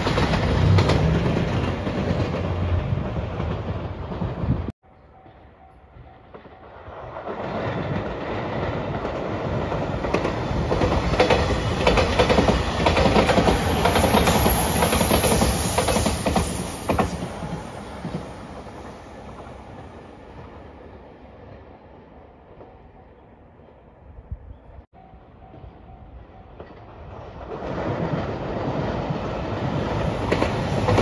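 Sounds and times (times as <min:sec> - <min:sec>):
electric train passing at speed: 0:00.0 - 0:31.0
wheels clacking over rail joints: 0:06.2 - 0:19.6, 0:26.4 - 0:31.0.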